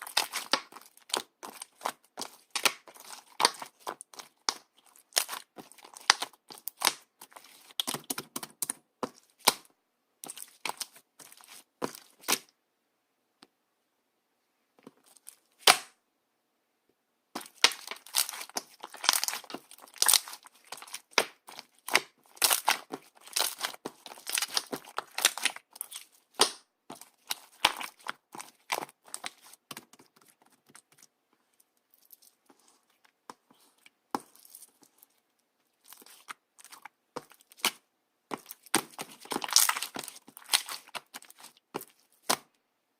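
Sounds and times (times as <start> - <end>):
slime crackling and popping: 0.0 - 12.5, 17.4 - 30.8, 35.8 - 42.5.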